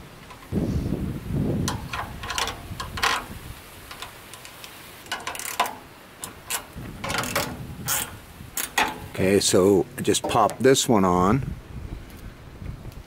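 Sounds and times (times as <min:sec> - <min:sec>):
metal parts clicking and rattling: 0:01.6 - 0:09.2.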